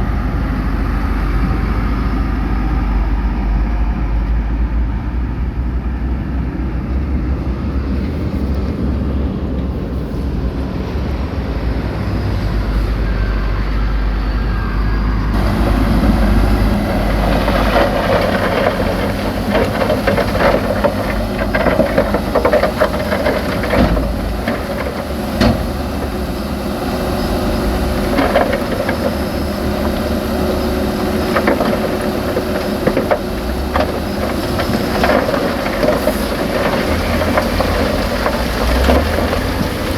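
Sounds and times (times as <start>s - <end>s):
diesel engine rumble: 0.0s - 39.9s
mechanical clatter and knocks: 15.4s - 26.4s, 27.8s - 30.2s, 30.8s - 39.9s.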